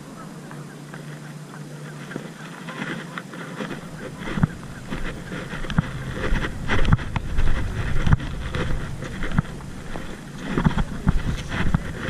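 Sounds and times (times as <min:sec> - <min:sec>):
wind buffeting microphone: 0:00.0 - 0:12.0
handling knocks and rustles: 0:02.0 - 0:12.0.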